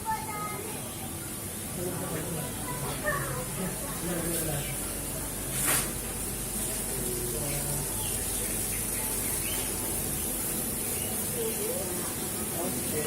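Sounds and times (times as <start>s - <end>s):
running water splashing: 2.0s - 13.0s
small birds chirping: 4.3s - 5.0s, 6.6s - 13.0s.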